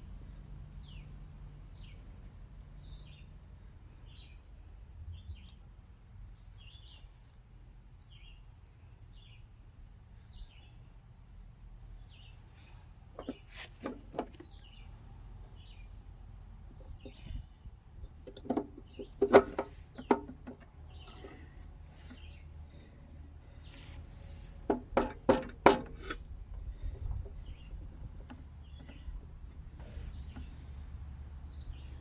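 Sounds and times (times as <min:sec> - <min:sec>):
tools knocking and clinking: 0:24.7 - 0:26.2.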